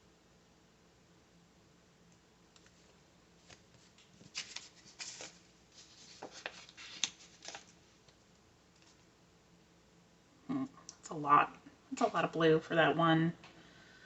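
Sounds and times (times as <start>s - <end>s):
paper stickers rustling: 2.6s - 7.7s.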